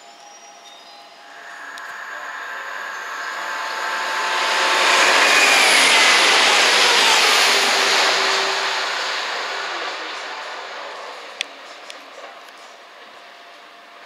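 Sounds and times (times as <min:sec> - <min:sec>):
train passing through platform: 0:00.0 - 0:14.0
whine falling in pitch: 0:01.2 - 0:11.7.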